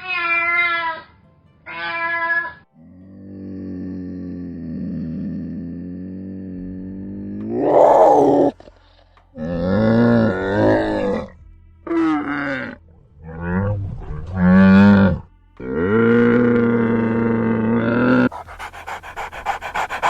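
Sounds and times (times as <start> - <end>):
animal calling: 7.5 - 8.6, 18.3 - 20.0.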